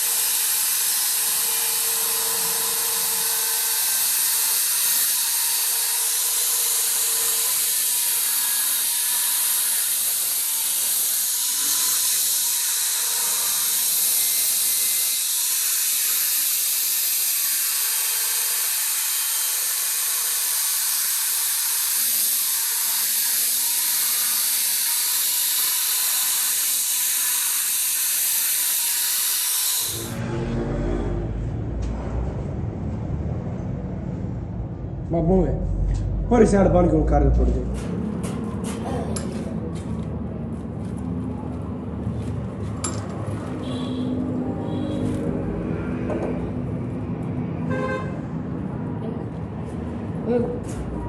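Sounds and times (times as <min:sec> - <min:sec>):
workshop tool hissing: 0:00.0 - 0:30.2.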